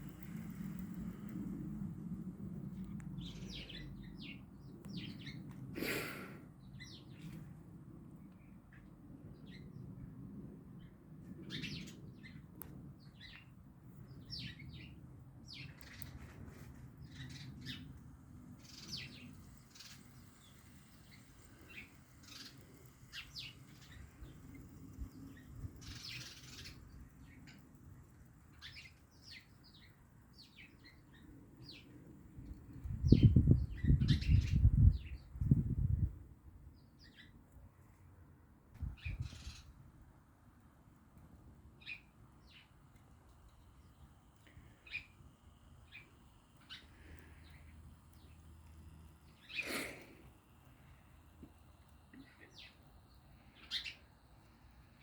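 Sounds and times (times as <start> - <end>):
small birds chirping: 0.0 - 7.5, 8.2 - 38.0, 38.8 - 40.1, 41.7 - 55.0.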